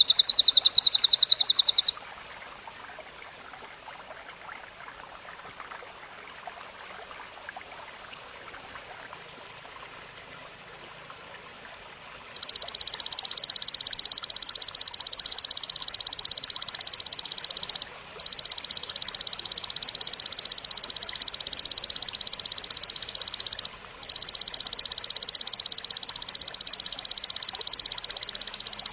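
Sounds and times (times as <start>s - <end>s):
insect buzzing trill: 0.0s - 1.9s, 12.4s - 28.9s
faint outdoor hiss: 0.0s - 28.9s.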